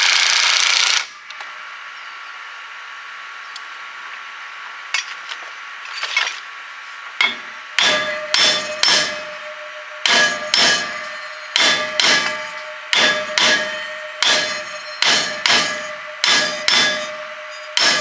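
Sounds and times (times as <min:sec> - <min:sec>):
hammer striking ringing metal: 0:07.2 - 0:18.0.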